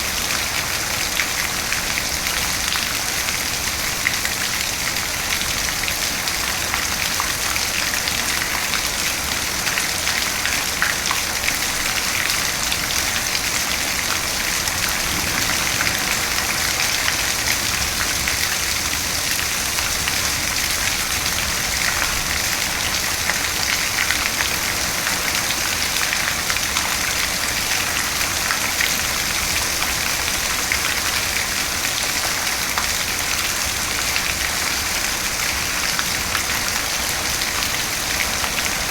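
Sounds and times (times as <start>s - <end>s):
steady rain falling: 0.0s - 38.9s
raindrop hits: 13.6s - 20.0s.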